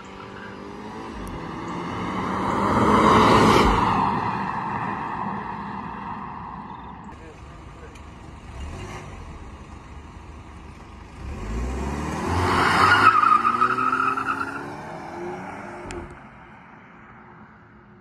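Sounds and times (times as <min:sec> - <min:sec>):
car engine revving: 0:00.0 - 0:04.6, 0:07.2 - 0:16.2.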